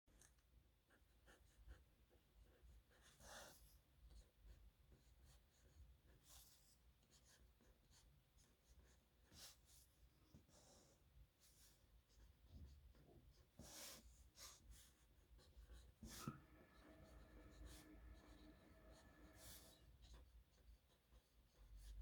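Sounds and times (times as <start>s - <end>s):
pen nib scratching on paper: 12.1s - 22.0s.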